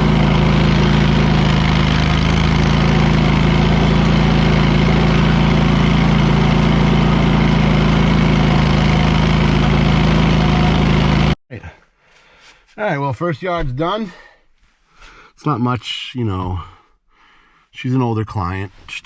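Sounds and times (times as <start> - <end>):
mower engine running: 0.0 - 11.4.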